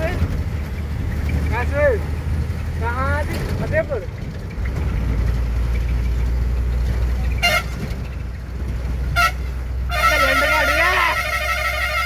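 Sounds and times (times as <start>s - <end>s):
truck engine droning: 0.0s - 12.0s
truck horn toot: 7.3s - 7.9s, 9.1s - 12.0s.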